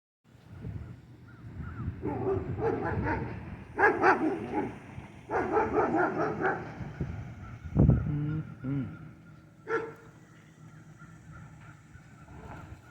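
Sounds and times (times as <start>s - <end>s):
dog barking: 2.0s - 6.8s, 9.7s - 10.0s.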